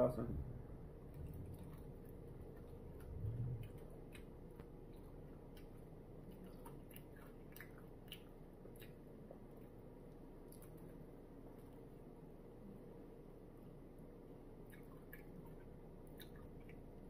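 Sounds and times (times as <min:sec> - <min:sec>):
man chewing: 0:01.0 - 0:11.9
wet mouth clicks: 0:01.2 - 0:09.0, 0:14.7 - 0:15.3, 0:16.1 - 0:16.8.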